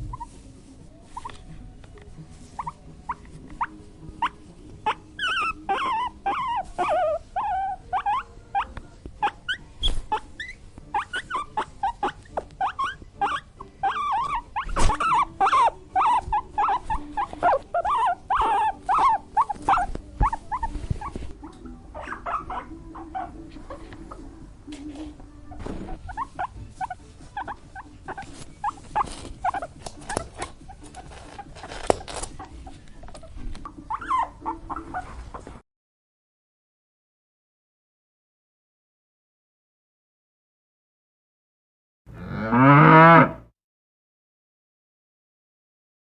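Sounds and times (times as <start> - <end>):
animal whiny calls: 2.6 - 21.1.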